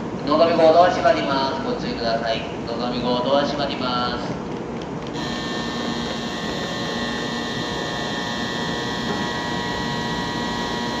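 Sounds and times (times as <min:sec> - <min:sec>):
high-pitched electronic buzzing: 0:05.1 - 0:11.0.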